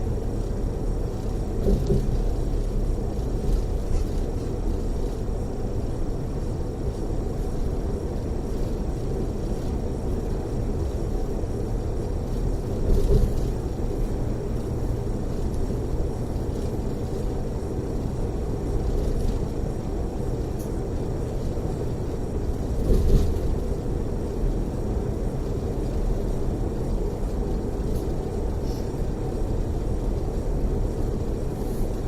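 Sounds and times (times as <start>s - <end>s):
road and engine rumble: 0.0s - 32.0s
vehicle bump: 1.1s - 5.2s, 12.7s - 14.7s, 22.6s - 23.7s.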